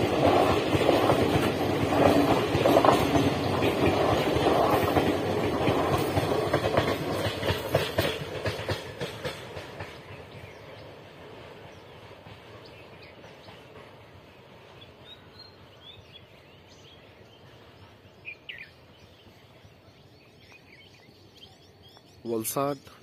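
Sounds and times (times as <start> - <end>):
train wheels clattering over rail joints: 0.0 - 15.1.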